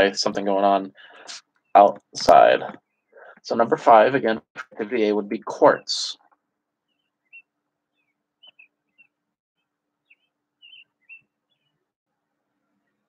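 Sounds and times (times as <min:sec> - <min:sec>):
faint bird chirps: 0:06.8 - 0:09.2, 0:10.0 - 0:11.8.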